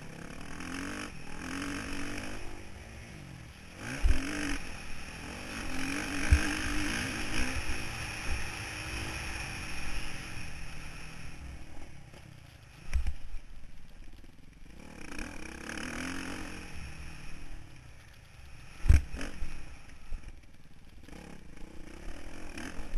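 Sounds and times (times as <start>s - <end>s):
motorcycle engine revving: 0.0s - 13.5s, 14.2s - 20.3s, 21.0s - 22.9s
wind hiss: 0.0s - 13.6s.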